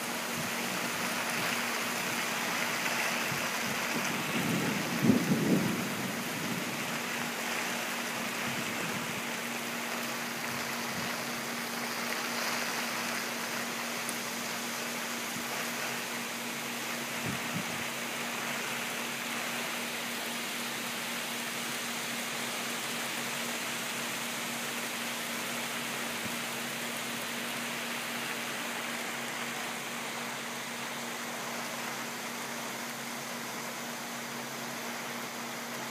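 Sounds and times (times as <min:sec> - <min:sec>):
heavy rain falling: 0:00.0 - 0:35.9.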